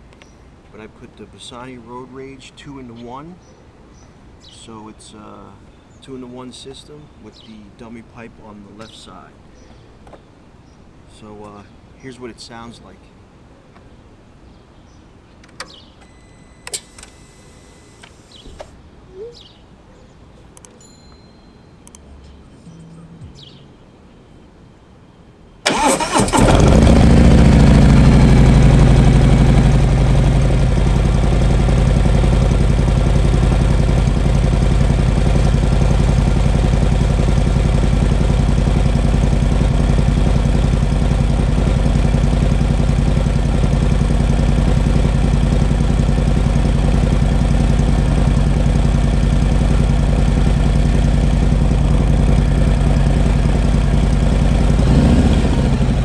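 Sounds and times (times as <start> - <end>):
motorcycle engine starting and idling: 16.6 - 18.8, 25.6 - 56.0.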